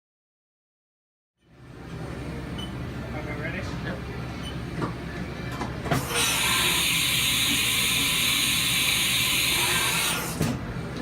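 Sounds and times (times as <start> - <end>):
milling machine hissing: 6.0 - 10.4.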